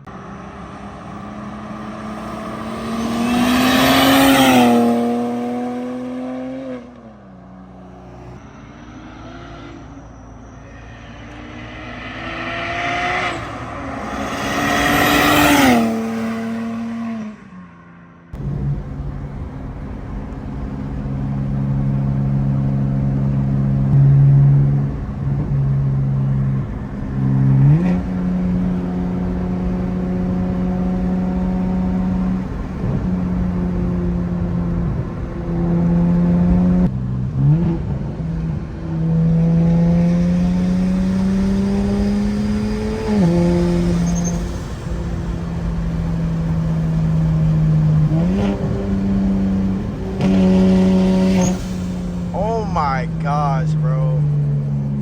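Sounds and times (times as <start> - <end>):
car engine running: 18.4 - 55.0.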